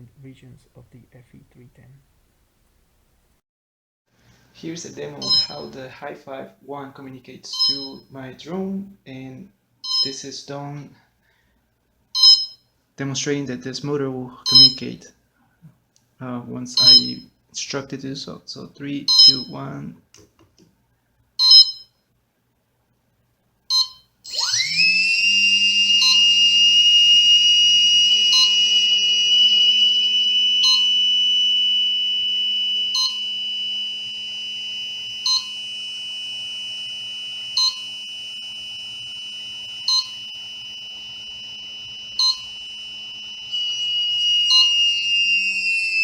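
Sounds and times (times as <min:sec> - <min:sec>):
drone motor whine: 0:05.1 - 0:05.7, 0:24.3 - 0:46.0
short beeps: 0:05.1 - 0:05.7, 0:07.6 - 0:08.1, 0:09.9 - 0:10.2, 0:12.2 - 0:12.6, 0:14.5 - 0:14.8, 0:16.8 - 0:17.2, 0:19.1 - 0:19.5, 0:21.4 - 0:21.8, 0:23.7 - 0:46.0.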